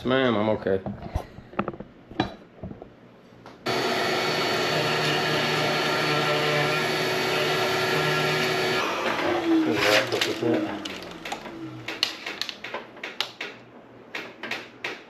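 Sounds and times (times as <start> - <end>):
electric power tool cutting wood: 3.7 - 12.0.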